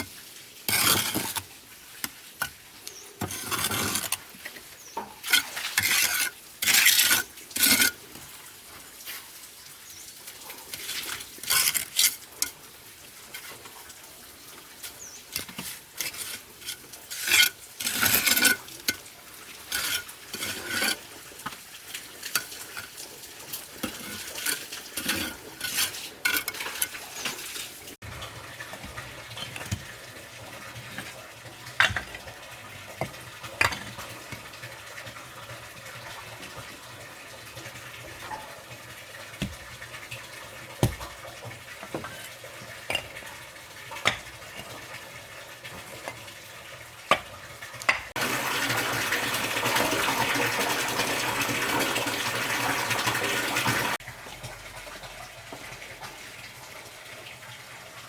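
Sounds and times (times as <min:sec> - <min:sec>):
trowel scraping mortar and brick: 0:00.7 - 0:08.4, 0:10.6 - 0:12.7, 0:15.3 - 0:28.0, 0:31.8 - 0:32.3, 0:39.3 - 0:43.2.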